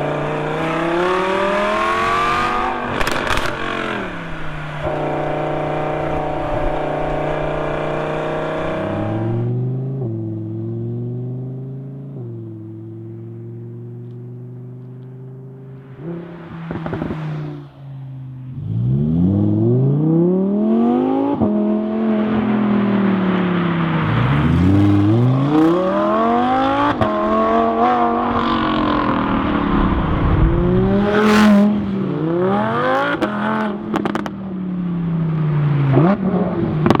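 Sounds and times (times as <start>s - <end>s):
sports car engine accelerating: 0.0s - 37.0s
exhaust cracks: 28.6s - 31.9s.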